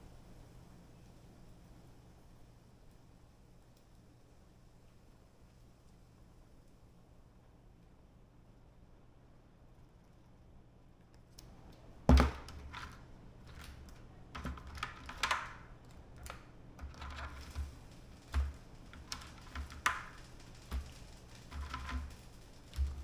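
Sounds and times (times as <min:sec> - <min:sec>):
crab shells and pot clicking: 0:11.4 - 0:23.0.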